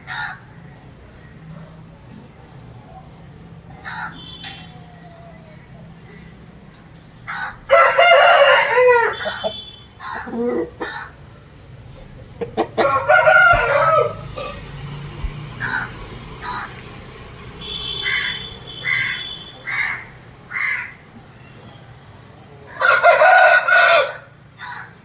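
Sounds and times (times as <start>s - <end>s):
rooster crowing: 7.4s - 10.3s, 12.8s - 14.6s, 22.7s - 24.9s.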